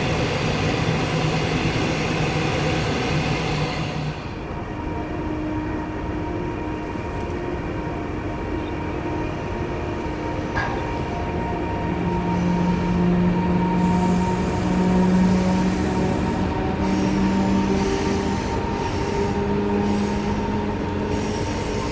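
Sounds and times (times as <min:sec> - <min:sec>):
train rumbling with humming tones: 0:00.0 - 0:21.9
hiss: 0:13.7 - 0:20.4.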